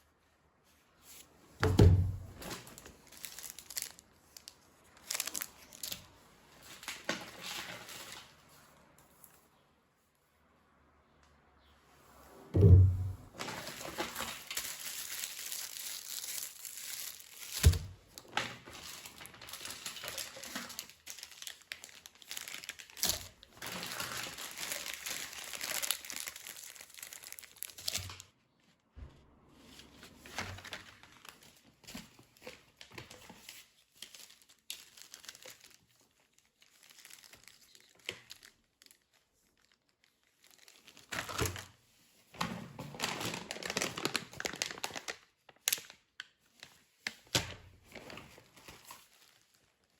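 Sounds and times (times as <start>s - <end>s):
packaging crinkling: 1.8s - 8.4s, 12.8s - 28.3s, 30.2s - 41.8s, 42.9s - 49.9s
sharp knocks: 12.6s - 13.3s.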